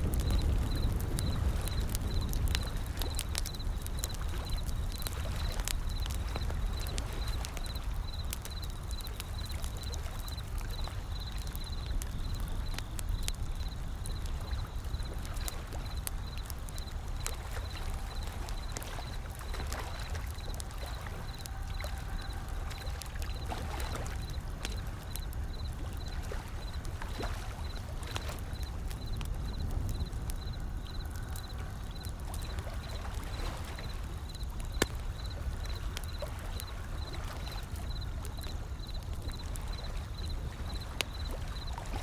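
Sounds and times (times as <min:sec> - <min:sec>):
ocean waves rumbling: 0:00.0 - 0:37.8
wood fire crackling: 0:00.0 - 0:42.0.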